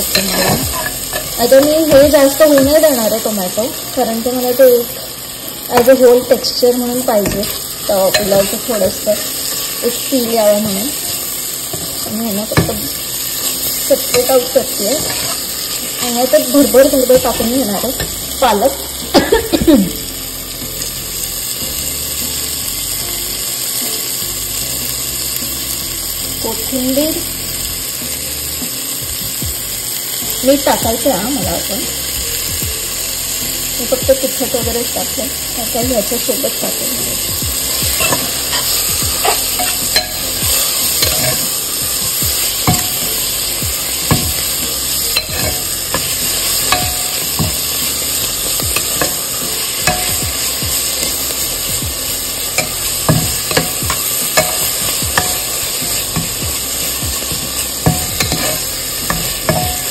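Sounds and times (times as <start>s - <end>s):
spoon stirring and scraping pot: 0.0s - 2.8s, 13.6s - 16.5s, 37.8s - 41.6s, 44.0s - 47.6s, 57.2s - 59.9s
masala sizzling in pot: 0.0s - 59.9s.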